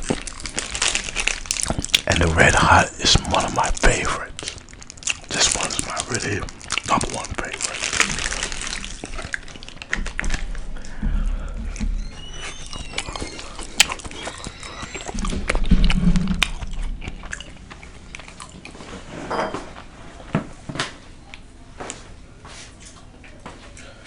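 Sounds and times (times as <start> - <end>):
person biting and chewing food: 0.0 - 19.1
wet mouth clicks and smacks: 1.6 - 2.1, 12.6 - 18.8.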